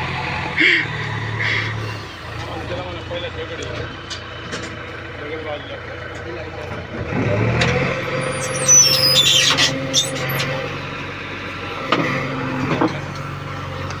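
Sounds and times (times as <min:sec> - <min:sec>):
diesel engine running: 0:00.0 - 0:14.0
high-pitched squeals: 0:08.0 - 0:10.7.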